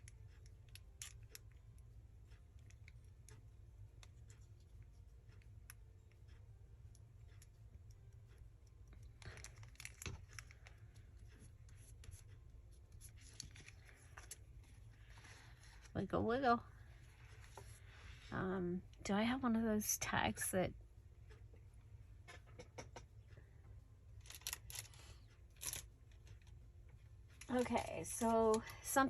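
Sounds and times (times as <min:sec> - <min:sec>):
low room hum: 0:00.0 - 0:29.0
paper rustling and scratching: 0:09.2 - 0:16.0.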